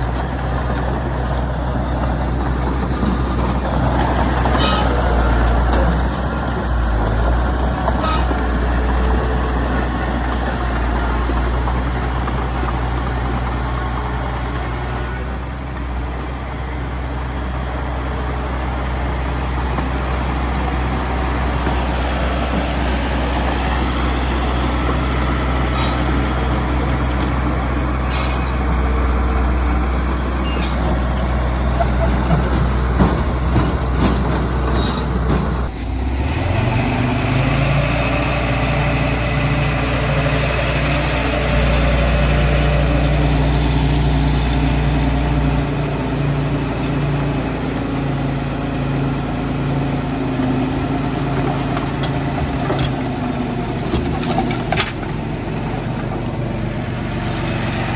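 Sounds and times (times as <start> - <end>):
diesel machinery engine running: 0.0 - 57.9
metal clanks and knocks: 30.6 - 35.8.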